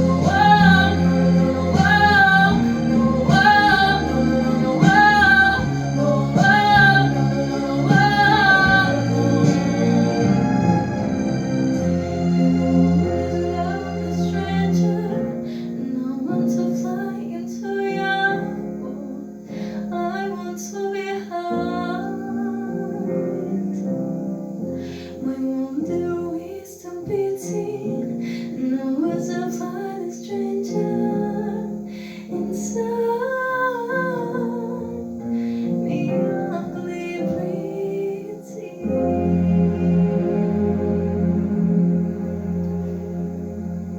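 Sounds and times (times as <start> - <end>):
woman singing: 0.0 - 10.7, 13.2 - 24.0, 25.2 - 40.9
instrumental accompaniment: 0.0 - 17.2, 34.9 - 43.9.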